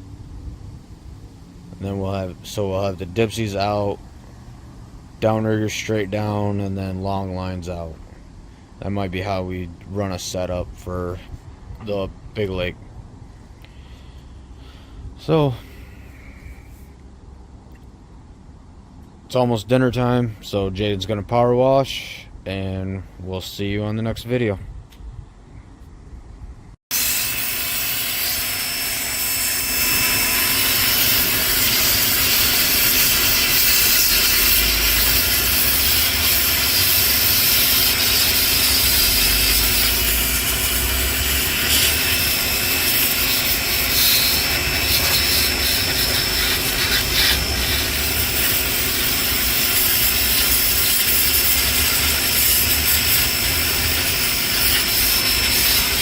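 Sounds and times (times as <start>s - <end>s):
pressure washer spraying: 27.0s - 56.0s.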